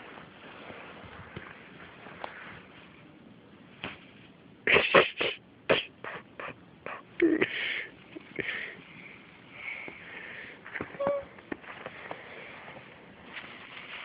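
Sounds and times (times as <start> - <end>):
breathy puffs: 5.1 - 12.9.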